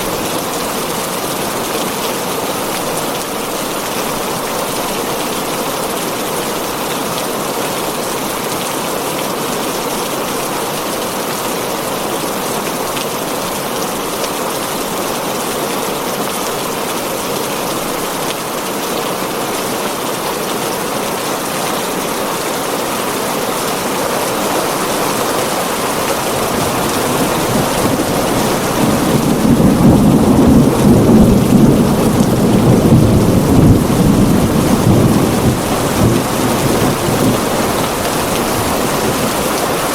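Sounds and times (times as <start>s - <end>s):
heavy rain on a tin roof: 0.0s - 39.9s
thunder rumbling: 23.7s - 39.9s.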